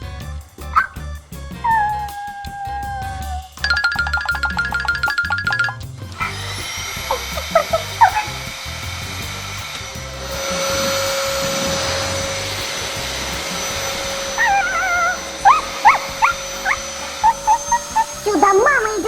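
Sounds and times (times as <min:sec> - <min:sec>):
background music: 0:00.0 - 0:19.0
short high squeaks: 0:00.0 - 0:19.0
vacuum cleaner motor: 0:06.2 - 0:19.0.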